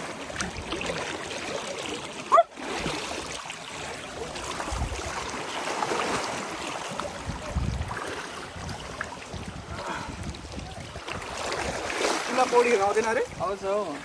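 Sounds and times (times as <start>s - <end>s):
stream water rushing: 0.0s - 14.0s
wind buffeting microphone: 4.3s - 5.4s, 7.0s - 14.0s.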